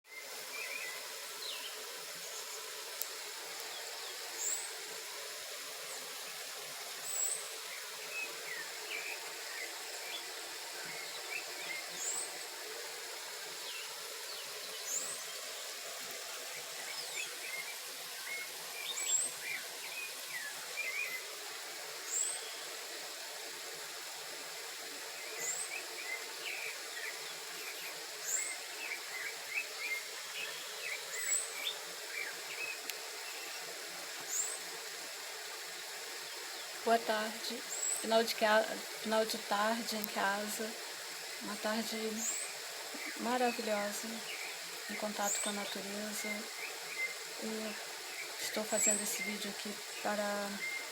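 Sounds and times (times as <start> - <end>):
insects buzzing: 0.1 - 50.9
birds chirping: 36.3 - 50.9.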